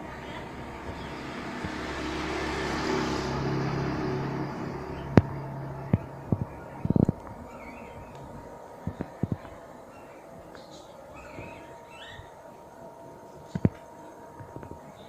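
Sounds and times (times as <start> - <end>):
truck engine running: 0.0 - 9.0.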